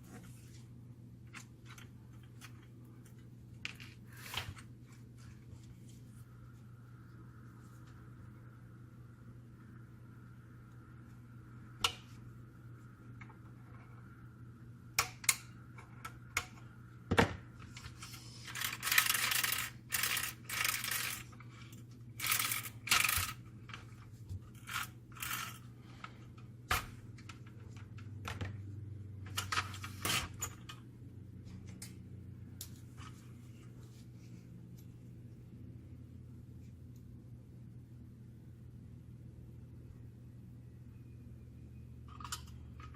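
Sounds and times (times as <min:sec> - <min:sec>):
steady low hum: 0:00.0 - 0:42.9
metal parts scraping and rubbing: 0:17.7 - 0:23.9, 0:24.5 - 0:25.7.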